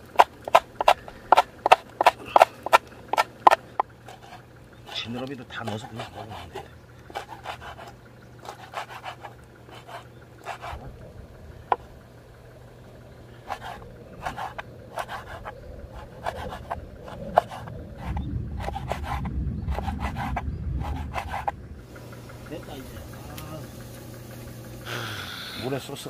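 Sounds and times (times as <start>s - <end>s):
low rumble: 9.3s - 24.9s.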